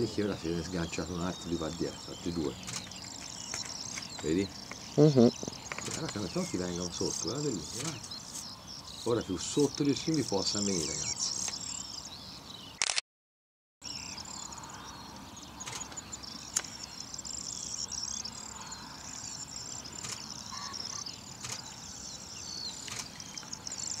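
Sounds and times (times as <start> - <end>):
high-pitched chirping chorus: 0.0 - 12.8, 13.8 - 24.0
faint clicks: 21.4 - 21.7.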